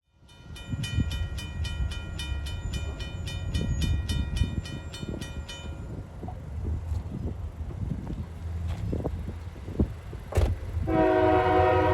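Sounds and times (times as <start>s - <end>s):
railroad bell ringing: 0.0s - 6.2s.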